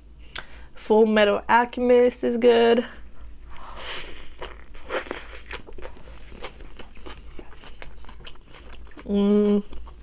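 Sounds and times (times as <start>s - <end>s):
crunchy food chewing: 3.5s - 10.0s.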